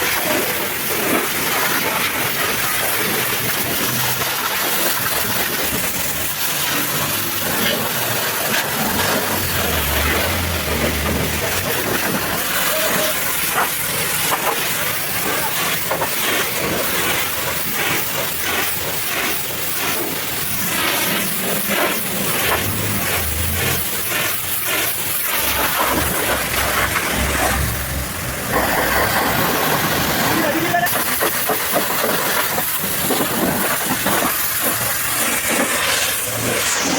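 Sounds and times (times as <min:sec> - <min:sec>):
pressure washer spraying water: 0:00.0 - 0:36.9
low hum: 0:22.0 - 0:30.2.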